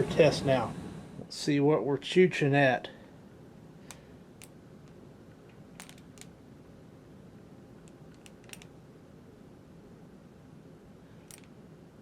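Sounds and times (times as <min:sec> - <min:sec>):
furnace blower humming: 0:00.0 - 0:01.8.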